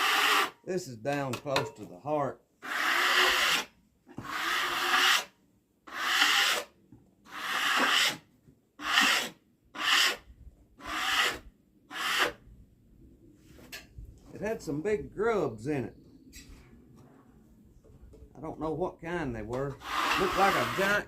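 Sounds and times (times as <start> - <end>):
rubbing strokes across wood: 19.8 - 21.0.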